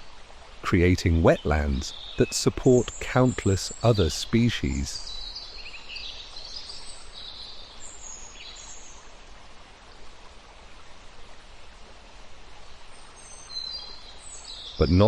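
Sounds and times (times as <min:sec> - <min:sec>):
running water hissing: 0:00.0 - 0:11.8.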